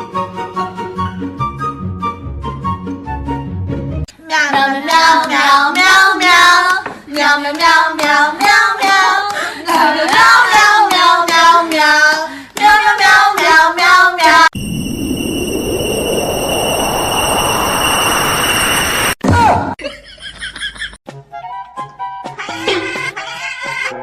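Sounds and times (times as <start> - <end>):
steady hiss with high tones: 14.6 - 19.2.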